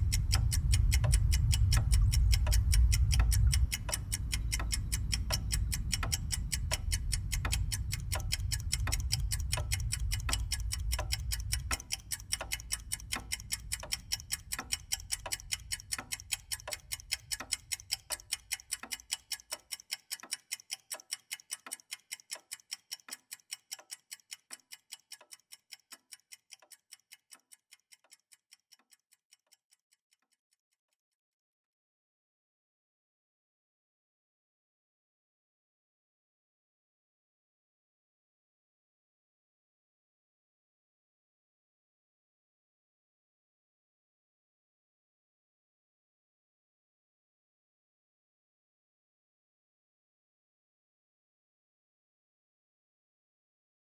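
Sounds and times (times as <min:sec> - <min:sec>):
low rumble: 0:00.0 - 0:11.7
clock ticking: 0:00.0 - 0:30.3.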